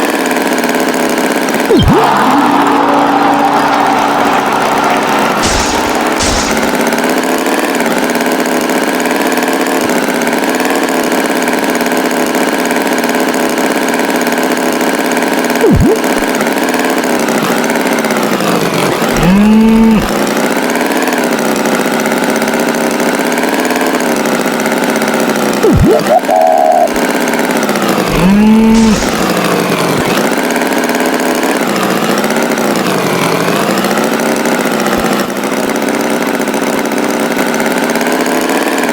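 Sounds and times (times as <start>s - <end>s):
cartoon tractor engine running: 0.0s - 38.9s
bull mooing: 19.1s - 20.2s, 28.1s - 30.1s.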